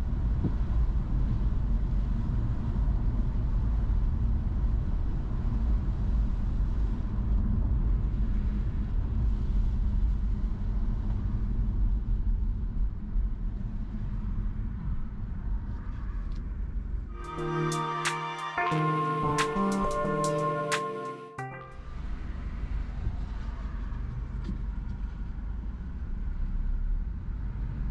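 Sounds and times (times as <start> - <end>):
music with sustained notes: 17.2 - 22.0.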